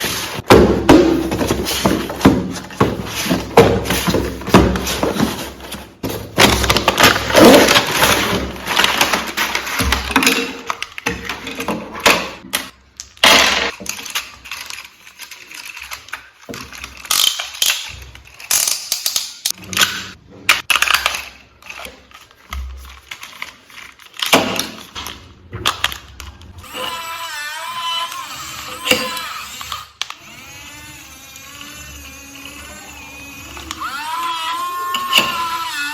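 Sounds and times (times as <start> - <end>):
plastic toy and packaging handled: 0.0 - 35.9.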